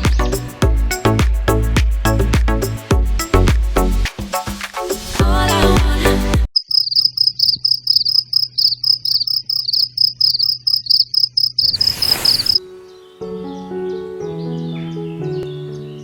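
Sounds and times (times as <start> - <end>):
music: 0.0 - 6.5, 12.6 - 16.0
insect chirping: 6.5 - 12.6.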